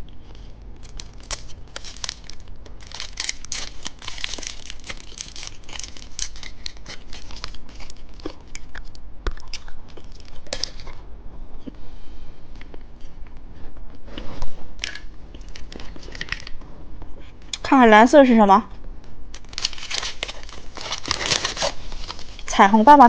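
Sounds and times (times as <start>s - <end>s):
candy wrapper crinkling: 0.8s - 11.0s, 14.8s - 16.6s, 19.3s - 22.6s.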